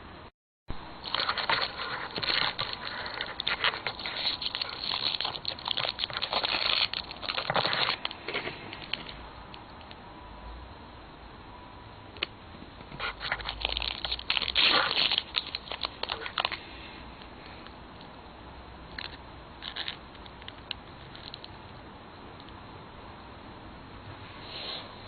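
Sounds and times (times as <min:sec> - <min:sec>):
plastic wrapper crinkling and tearing: 0:01.0 - 0:09.1, 0:13.0 - 0:16.6.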